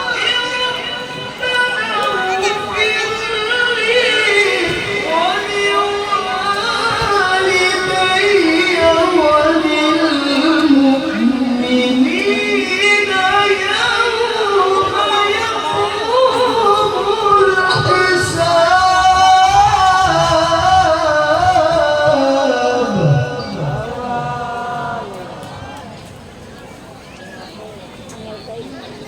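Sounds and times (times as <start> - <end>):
man chanting a recitation: 0.0 - 26.0.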